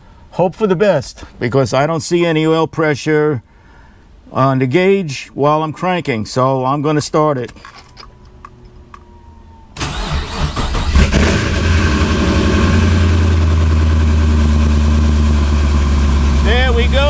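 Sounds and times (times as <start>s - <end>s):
engine starter cranking: 9.8s - 12.6s
engine starting and idling: 9.8s - 17.0s.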